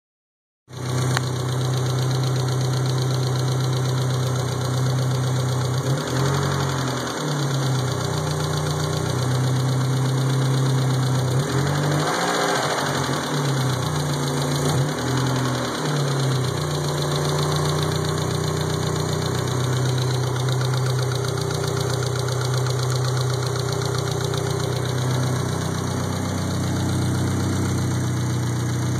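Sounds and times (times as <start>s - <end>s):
car engine idling and revving: 0.7s - 28.9s
engine ticking: 0.8s - 28.9s.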